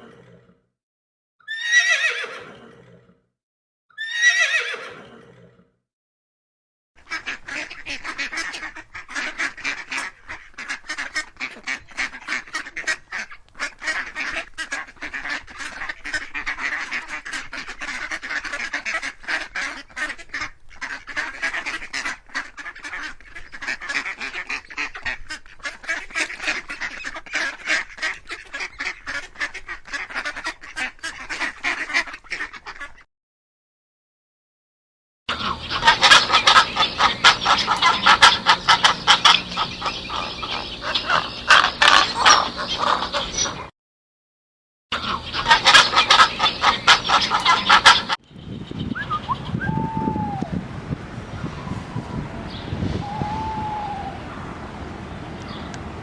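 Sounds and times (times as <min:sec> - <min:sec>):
flock of birds calling: 0:35.4 - 0:43.7, 0:45.4 - 0:56.0.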